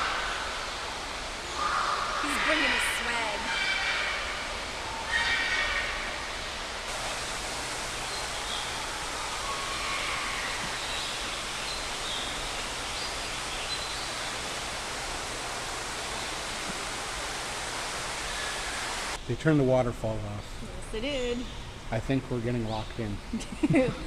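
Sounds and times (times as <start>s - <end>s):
waterfall rushing: 0.0s - 19.2s.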